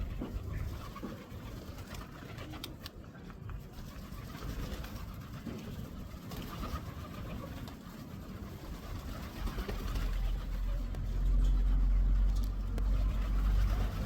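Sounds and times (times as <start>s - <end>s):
low street rumble: 0.0s - 14.0s
pigeons cooing: 3.6s - 14.0s.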